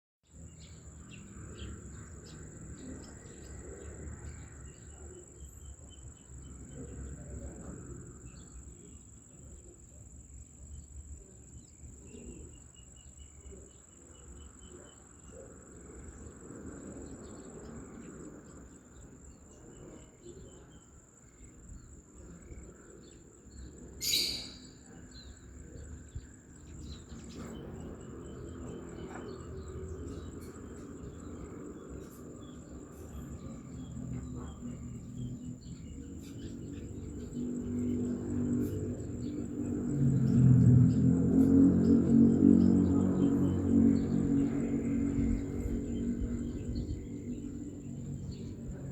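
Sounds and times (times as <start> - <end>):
insects droning: 0.3 - 48.9
birds chirping: 11.2 - 48.9
low rumbling background: 25.2 - 48.9.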